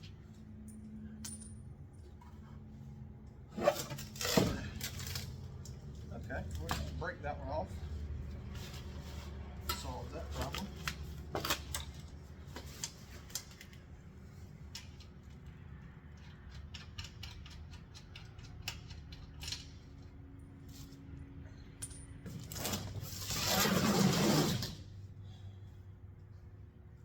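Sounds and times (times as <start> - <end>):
hand tools clicking on bolts: 16.1 - 19.8.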